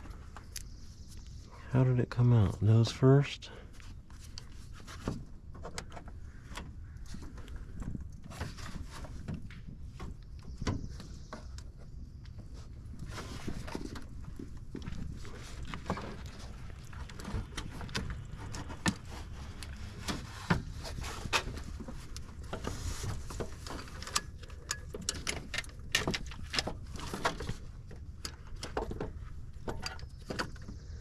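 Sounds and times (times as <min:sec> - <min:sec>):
metal knocks and scraping: 0:20.9 - 0:22.2.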